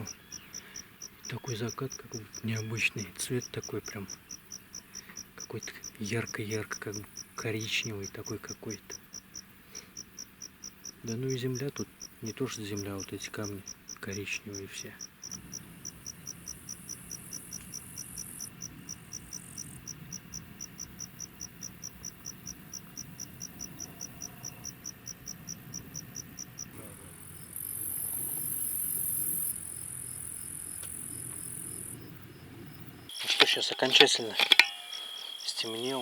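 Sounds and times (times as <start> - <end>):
crickets chirping: 0.0 - 36.0
high-pitched insect buzz: 33.1 - 36.0.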